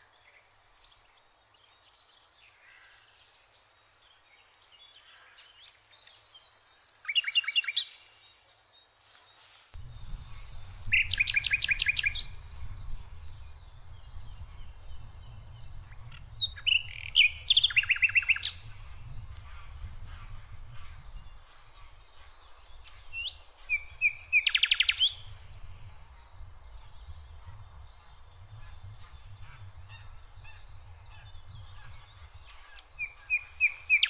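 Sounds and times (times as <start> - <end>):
songbirds chirping: 0.0 - 34.0
low rumble: 9.8 - 16.9.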